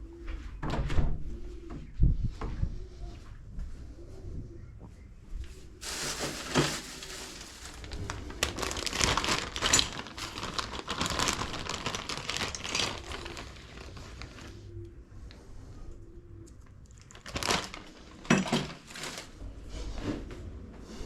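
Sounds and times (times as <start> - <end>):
plastic packaging crinkling: 5.8 - 14.5, 16.9 - 19.4.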